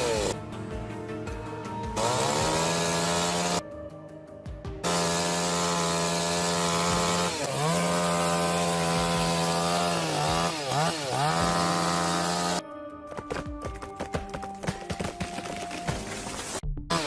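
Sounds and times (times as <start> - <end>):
chainsaw cutting at high revs: 0.0 - 0.4, 2.0 - 3.6, 4.8 - 12.6, 16.4 - 17.0.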